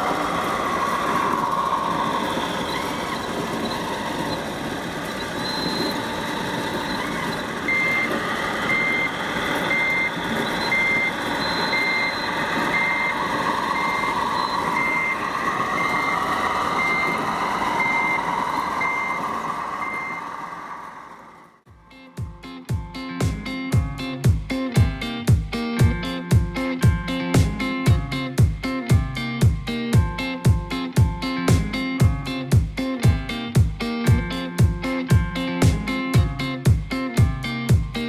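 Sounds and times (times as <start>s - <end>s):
reversing beeper: 0.0s - 21.6s.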